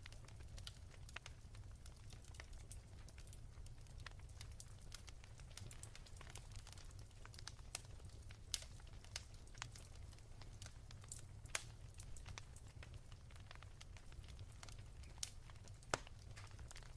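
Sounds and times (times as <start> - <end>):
wood fire crackling: 0.0 - 16.9.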